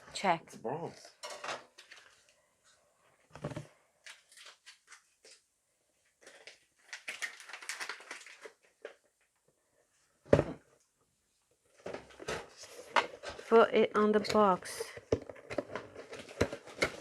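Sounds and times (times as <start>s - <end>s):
packaging rustling and rattling: 6.2s - 9.0s, 11.7s - 13.6s, 14.4s - 17.0s.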